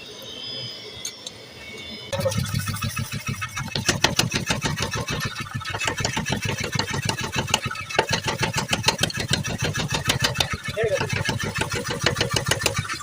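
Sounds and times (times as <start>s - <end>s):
motor hum: 0.0s - 13.0s
power hammer striking metal: 2.2s - 13.0s.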